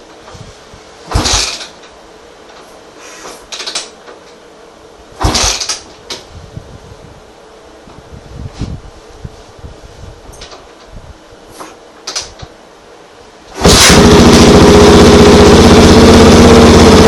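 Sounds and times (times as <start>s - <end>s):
motorcycle engine throttle blips: 13.6s - 17.0s.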